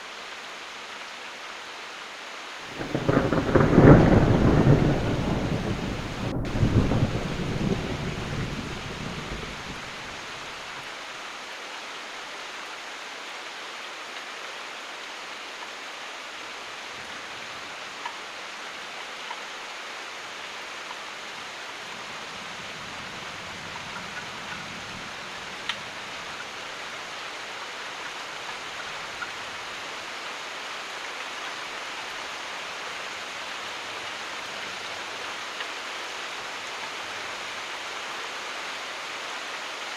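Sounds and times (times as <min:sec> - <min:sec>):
heavy rain: 0:00.1 - 0:39.9
sharp raindrops: 0:02.6 - 0:10.7, 0:21.8 - 0:38.8
thunder rumbling: 0:02.7 - 0:10.4.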